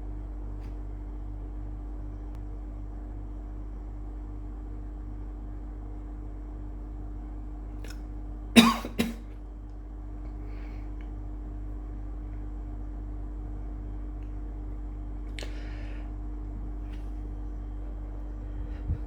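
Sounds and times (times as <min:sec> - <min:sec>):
low electrical hum: 0:00.0 - 0:19.0
person coughing: 0:08.6 - 0:09.3.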